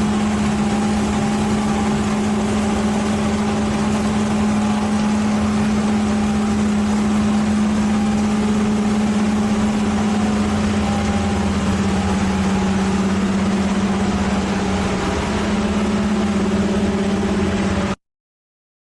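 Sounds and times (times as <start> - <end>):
machine engine humming: 0.0 - 18.0.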